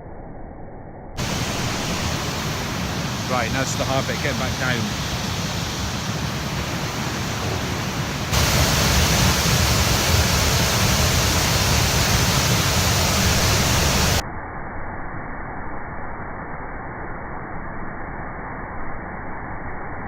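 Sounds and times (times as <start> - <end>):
waterfall rushing: 1.2 - 14.2.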